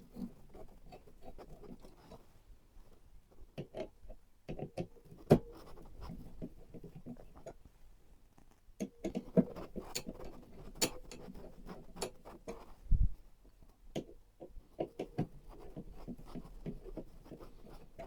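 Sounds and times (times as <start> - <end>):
computer hardware clicks and taps: 8.8 - 12.7.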